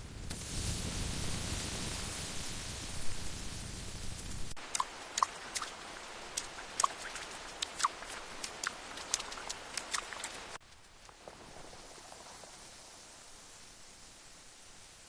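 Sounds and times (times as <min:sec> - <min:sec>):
rain hiss: 0:00.0 - 0:15.0
water drops dripping: 0:04.6 - 0:10.6.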